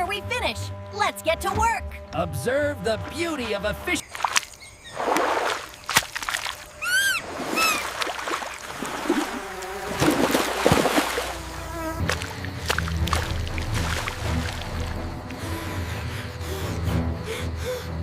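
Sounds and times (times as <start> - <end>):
water sloshing and splashing: 4.0 - 15.4.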